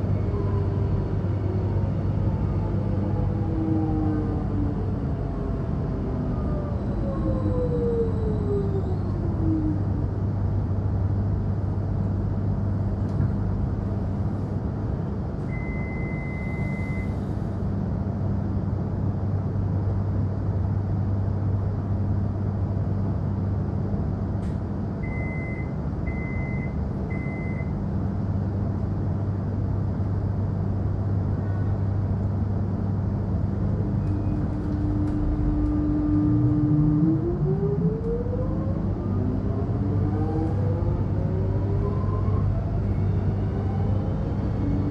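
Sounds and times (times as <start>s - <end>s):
electric train rumbling: 0.0s - 44.9s
motor whine climbing in pitch: 34.1s - 44.9s.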